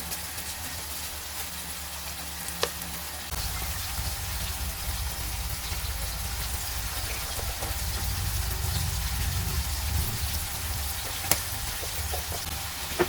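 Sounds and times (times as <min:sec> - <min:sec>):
food sizzling in a frying pan: 0:00.0 - 0:13.0
low hum: 0:03.3 - 0:13.0.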